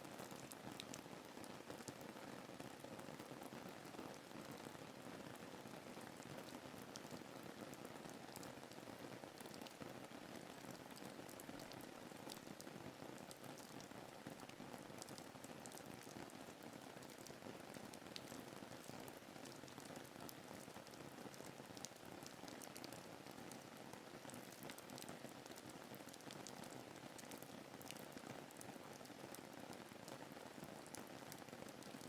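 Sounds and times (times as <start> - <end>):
raindrops ticking: 24.4 - 26.4.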